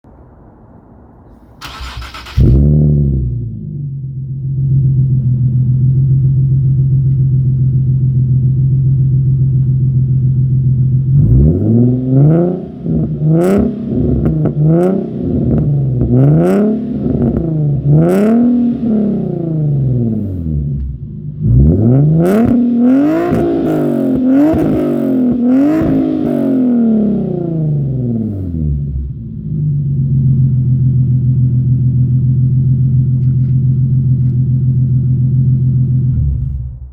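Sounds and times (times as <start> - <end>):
car engine idling: 1.4 - 36.9
engine revving: 1.6 - 6.8, 10.4 - 31.6
exhaust pops: 12.8 - 18.6, 22.2 - 26.4, 33.0 - 34.6.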